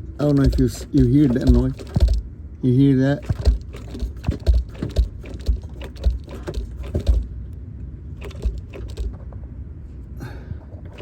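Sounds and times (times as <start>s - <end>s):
drive shaft clunking and rattling: 0.0s - 2.3s, 3.2s - 7.4s, 8.2s - 9.4s, 10.7s - 11.0s.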